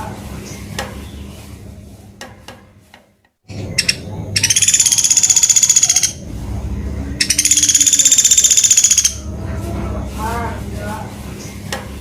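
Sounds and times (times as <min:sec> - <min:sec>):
woodpecker rattling trill: 0:03.5 - 0:06.3, 0:07.2 - 0:09.3
woodpecker short sharp notes: 0:03.8 - 0:06.2, 0:07.2 - 0:09.2.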